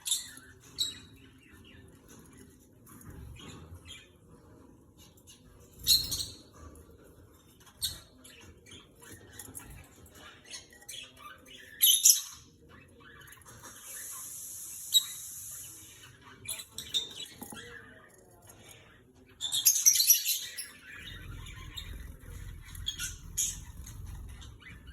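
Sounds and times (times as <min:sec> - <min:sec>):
pet birds chirping and squawking: 0:00.0 - 0:24.9
steady hiss: 0:13.9 - 0:16.0.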